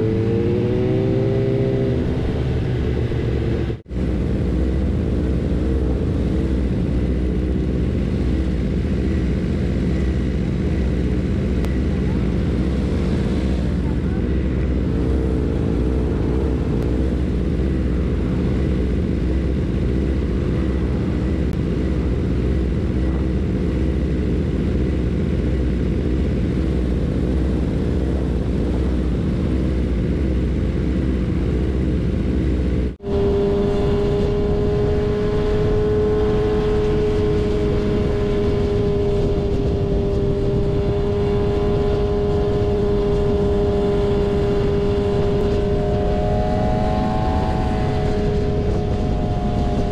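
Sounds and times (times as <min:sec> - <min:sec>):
motorcycle engine cruising drone: 0:00.0 - 0:49.9
motorcycle engines idling: 0:01.0 - 0:33.3.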